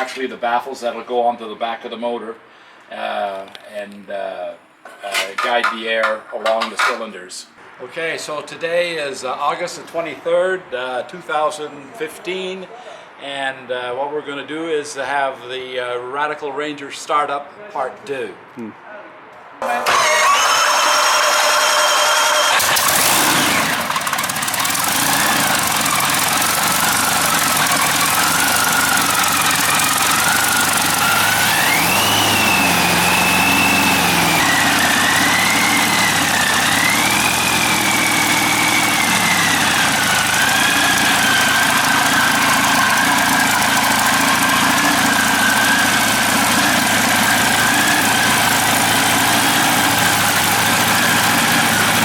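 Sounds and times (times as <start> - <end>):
aircraft engine whining: 19.7 - 52.0.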